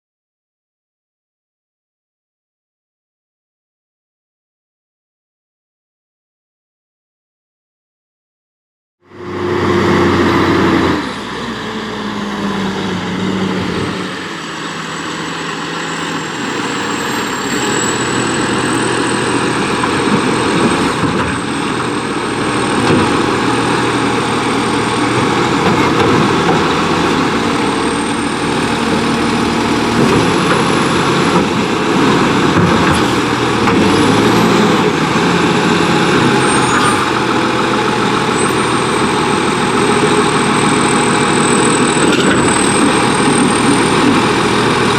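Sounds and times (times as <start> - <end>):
garbage truck diesel engine revving: 9.1 - 44.9.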